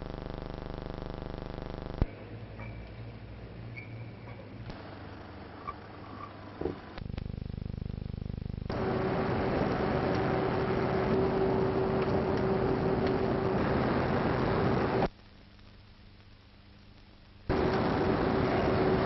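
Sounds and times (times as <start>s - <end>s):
faint hum: 0.0s - 19.0s
low pulsing hum: 4.7s - 15.1s, 17.5s - 19.0s.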